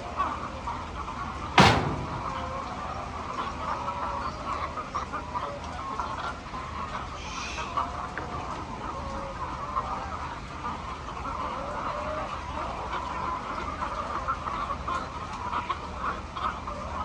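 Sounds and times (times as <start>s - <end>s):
steady low hum: 1.6s - 2.8s.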